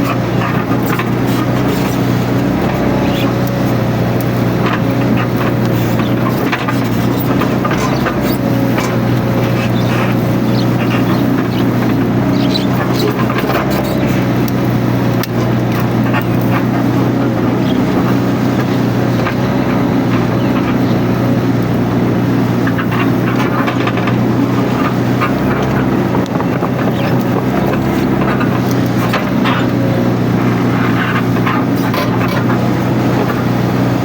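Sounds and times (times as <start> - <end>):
excavator engine running: 0.0 - 34.0.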